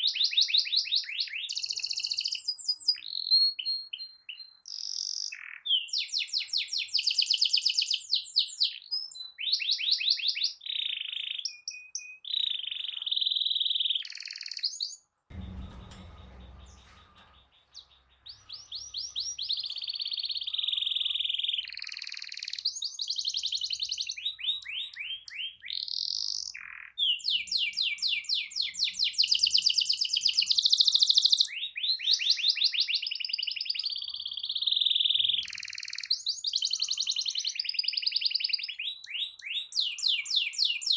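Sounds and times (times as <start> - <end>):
dull thump: 15.3 - 18.9
canary singing trills: 16.5 - 40.9.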